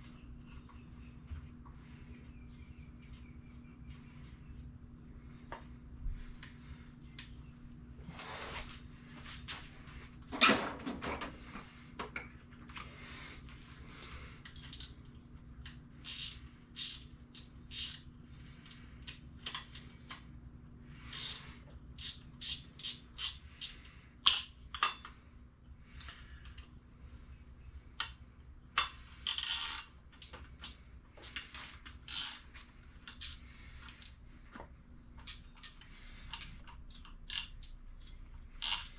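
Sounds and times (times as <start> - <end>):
metal tools clinking and tapping: 22.0 - 25.4, 28.8 - 32.4.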